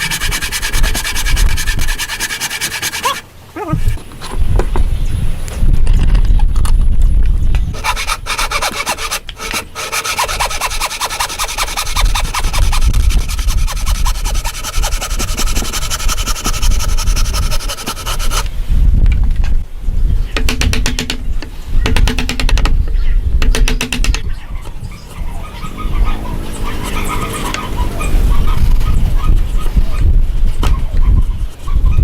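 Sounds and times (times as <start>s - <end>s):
hand tool rasping on wood: 0.0s - 4.0s, 7.8s - 18.5s.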